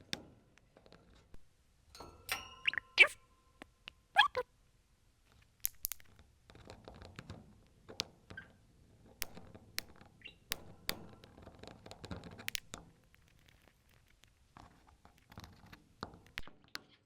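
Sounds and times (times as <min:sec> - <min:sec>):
budgerigar tapping and nibbling: 0:02.7 - 0:03.2, 0:04.2 - 0:04.4.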